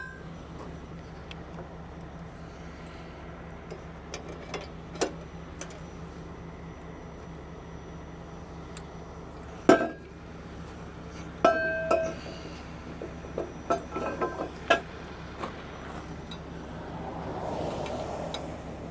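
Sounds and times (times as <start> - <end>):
idling engine hum: 0.0 - 18.9.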